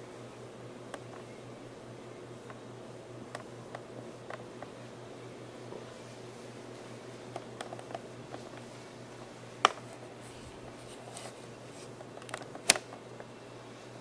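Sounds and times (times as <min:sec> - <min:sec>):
sharp clicks: 0:12.1 - 0:13.0.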